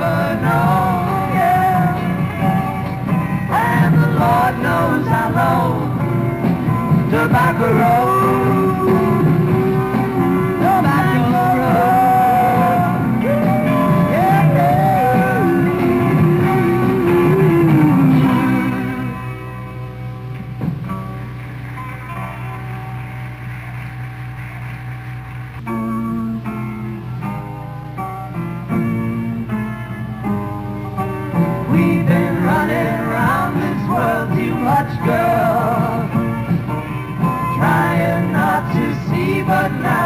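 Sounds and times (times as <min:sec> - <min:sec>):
live rock band playing: 0:00.0 - 0:40.0
person singing long notes: 0:07.1 - 0:19.4.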